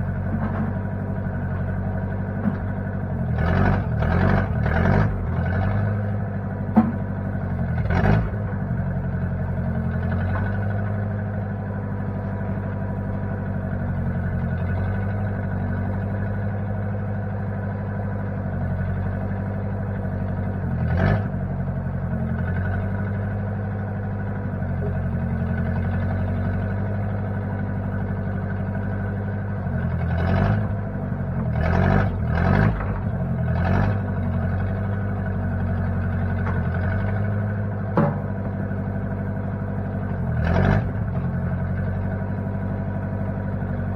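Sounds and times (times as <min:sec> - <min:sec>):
backhoe engine running: 0:00.0 - 0:43.9
metal clanks and knocks: 0:00.2 - 0:00.9, 0:06.7 - 0:07.1, 0:37.9 - 0:38.6.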